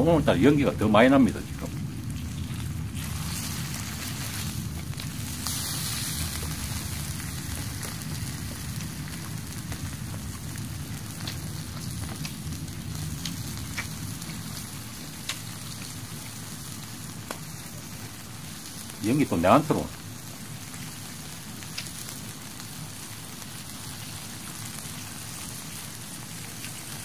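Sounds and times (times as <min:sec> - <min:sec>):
wood fire hissing: 0:00.0 - 0:27.0
sharp pops of burning logs: 0:06.2 - 0:19.0, 0:19.9 - 0:26.9.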